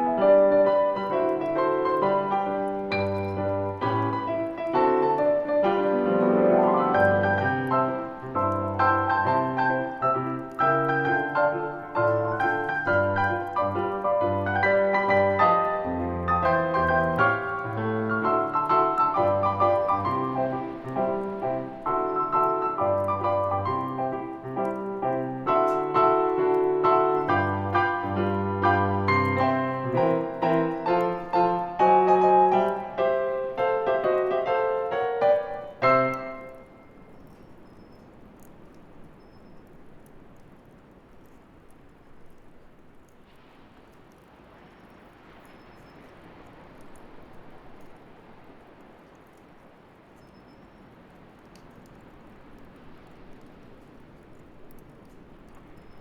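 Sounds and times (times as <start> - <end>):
calm solo piano music: 0.0 - 37.9
faint hiss: 0.0 - 56.0
small clicks: 0.1 - 56.0.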